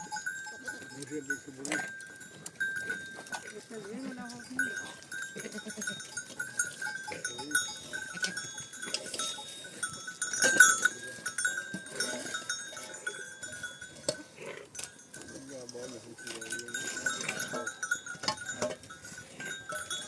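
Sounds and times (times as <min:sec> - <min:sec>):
animal bells clinking: 0:00.0 - 0:20.0
goats and sheep bleating: 0:02.0 - 0:15.0.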